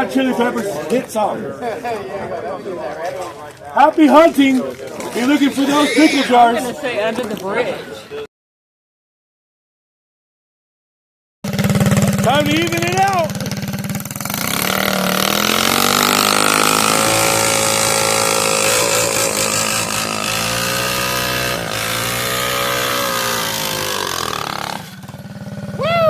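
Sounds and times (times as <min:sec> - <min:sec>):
mini bike engine running hard: 0:05.0 - 0:06.5, 0:11.5 - 0:26.0.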